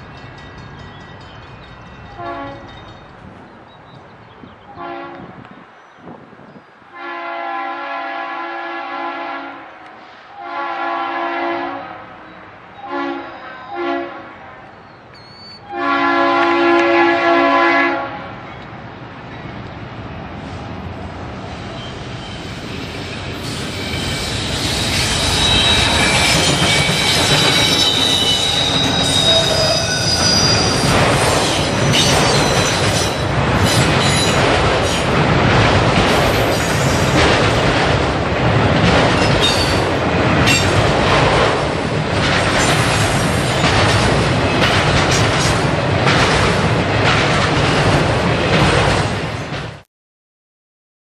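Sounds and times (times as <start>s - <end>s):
freight train rolling past: 0.0s - 49.8s
wheel flange squeal: 15.2s - 15.7s, 21.8s - 30.9s
wheels clacking over rail joints: 23.7s - 49.8s.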